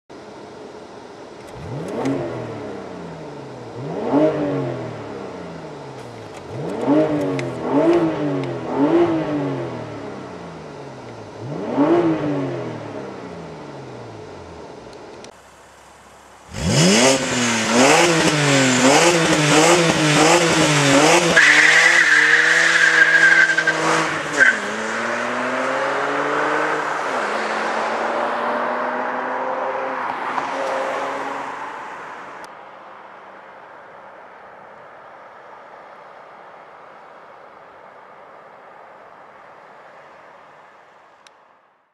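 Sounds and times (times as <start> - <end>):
car engine revving: 1.2 - 32.0
tyres squealing: 21.0 - 24.8.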